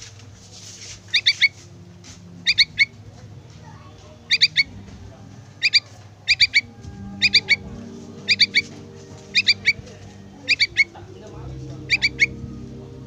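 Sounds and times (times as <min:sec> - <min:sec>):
bird chick calling high notes: 0:02.4 - 0:03.0, 0:04.2 - 0:04.8, 0:05.6 - 0:08.7, 0:09.3 - 0:11.0, 0:11.9 - 0:12.4.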